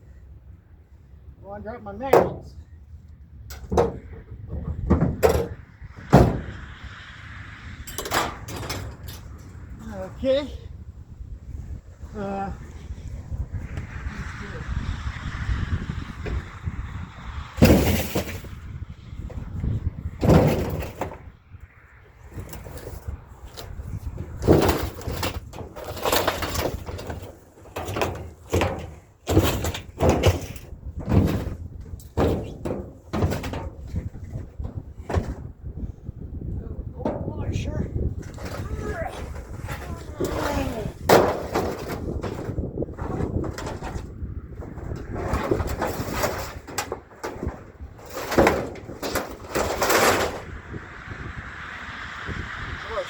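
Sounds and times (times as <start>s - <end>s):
scrap metal knocks and clanks: 1.9s - 2.7s, 3.5s - 6.9s, 7.8s - 9.6s, 17.6s - 21.4s, 22.1s - 35.9s, 37.0s - 50.6s.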